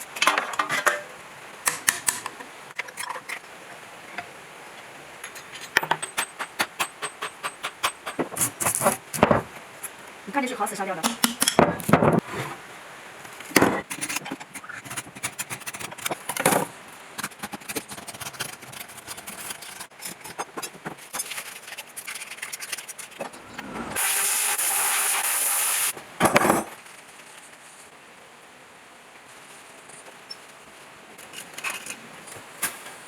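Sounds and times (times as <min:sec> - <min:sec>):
metal tools knocking and clicking: 0:05.2 - 0:08.8, 0:11.0 - 0:12.2
steady hiss: 0:22.9 - 0:26.1.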